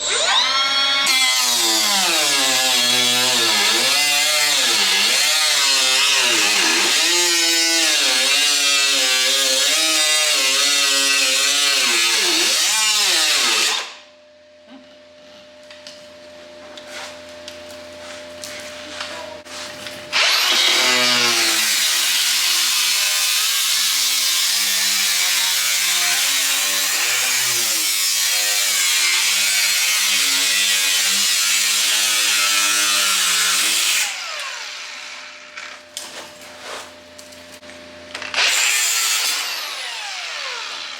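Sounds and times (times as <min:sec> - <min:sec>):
power tool whining: 0:00.0 - 0:14.0, 0:20.1 - 0:35.9, 0:38.1 - 0:40.9.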